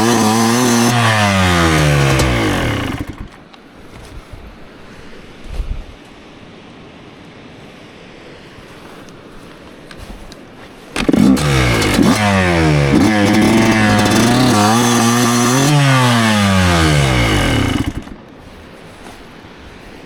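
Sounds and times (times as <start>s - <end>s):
motorcycle engine revving: 0.0s - 3.4s, 11.0s - 18.3s.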